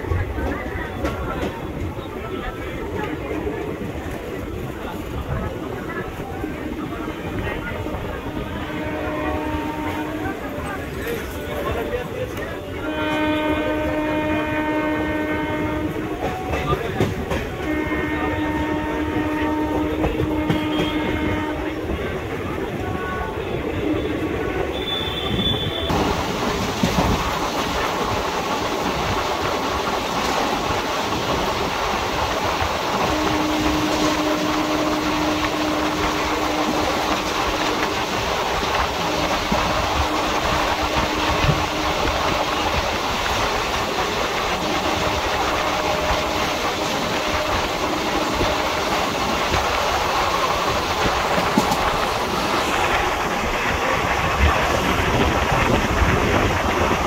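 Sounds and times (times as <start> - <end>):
train wheels rumbling on track: 0.0 - 57.0
clacks over rail joints: 15.7 - 22.1, 25.9 - 57.0.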